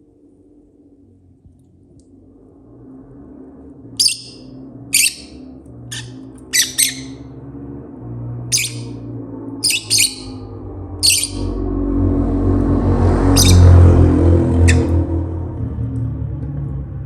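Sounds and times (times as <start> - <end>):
bird chirping high-pitched: 4.0 - 7.2, 8.5 - 9.0, 9.6 - 11.6, 13.3 - 13.8, 14.6 - 15.0.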